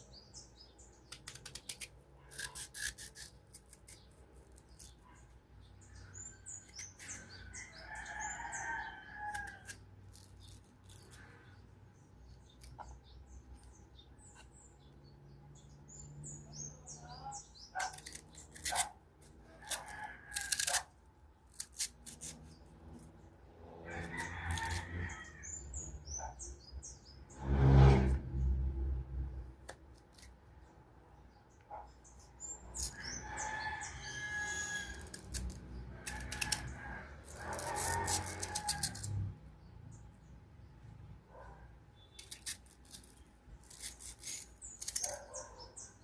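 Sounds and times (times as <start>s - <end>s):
knife slicing crunchy mango: 1.0s - 5.0s, 17.7s - 23.0s, 32.7s - 39.3s
birds chirping: 10.4s - 18.9s, 44.6s - 46.0s.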